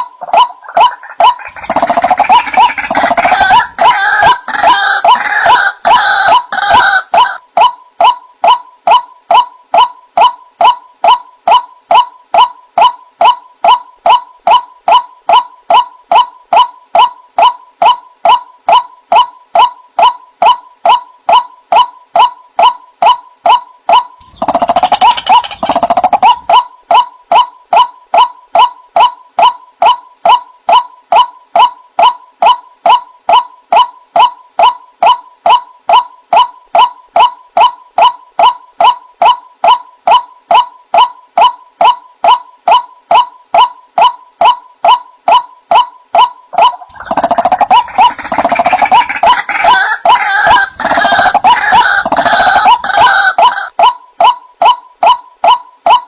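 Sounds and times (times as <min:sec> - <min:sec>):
waterhen calling: 0:00.0 - 0:08.6, 0:23.5 - 0:27.0, 0:46.6 - 0:53.9.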